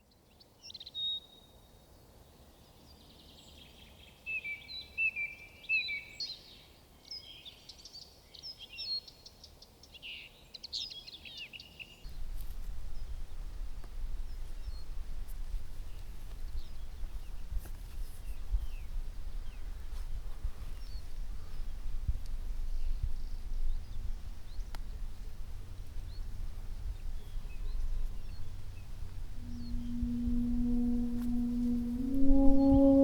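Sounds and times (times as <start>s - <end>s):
wind buffeting microphone: 12.1s - 33.0s
birds chirping and trilling: 25.6s - 33.0s.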